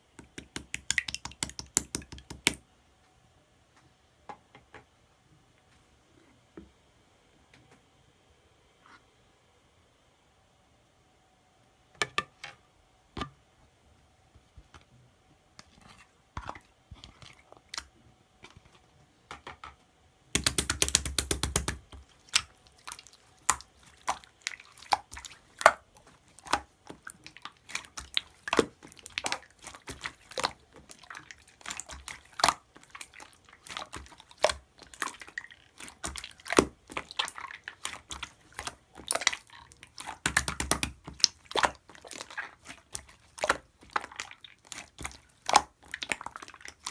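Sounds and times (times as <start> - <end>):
slime squishing and popping: 0.2 - 2.6, 20.4 - 46.9.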